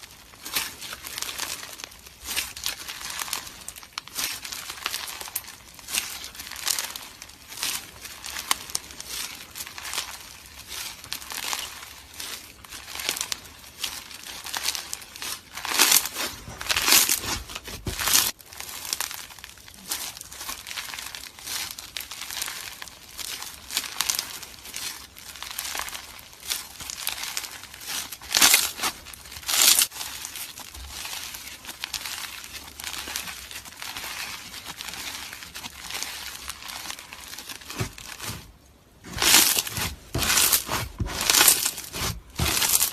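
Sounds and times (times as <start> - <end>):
slime crackling and popping: 0.0 - 42.9.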